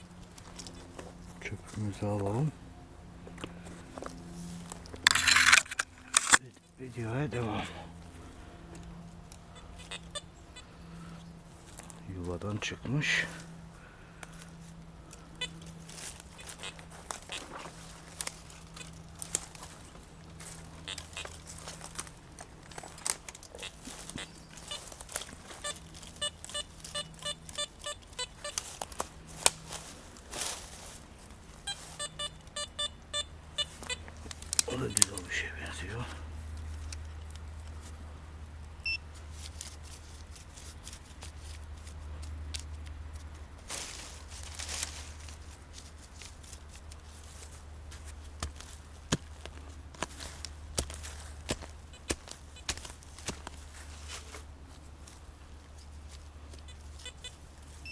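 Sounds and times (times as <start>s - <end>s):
soil and leaf litter crackling: 0.0s - 57.9s
steady low hum: 0.0s - 57.9s
pinpointer short beeps: 25.6s - 28.6s, 31.7s - 34.0s, 38.8s - 39.0s.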